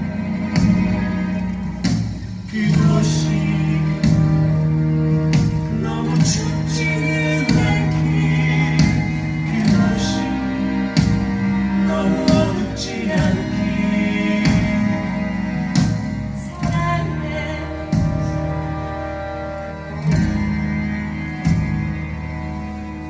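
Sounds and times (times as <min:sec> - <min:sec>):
instrumental accompaniment: 0:00.0 - 0:23.0
musical theatre singing: 0:00.0 - 0:23.0.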